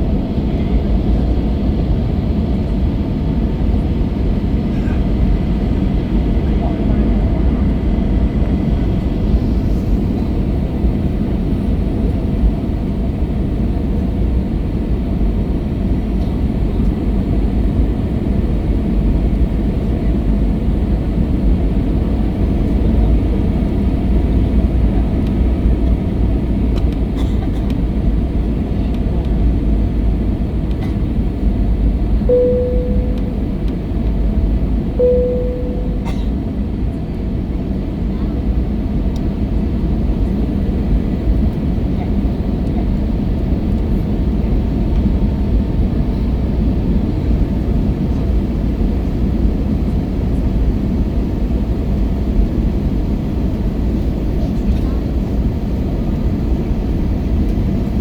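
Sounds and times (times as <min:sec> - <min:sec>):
airplane cabin rumble: 0:00.0 - 0:58.0
short single tones: 0:32.3 - 0:33.9, 0:35.0 - 0:36.5.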